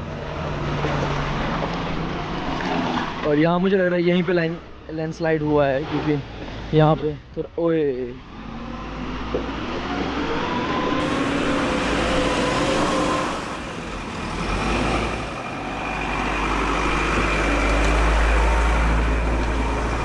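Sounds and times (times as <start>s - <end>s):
deep rumble: 11.0s - 20.0s
vehicle engine running: 11.0s - 20.0s.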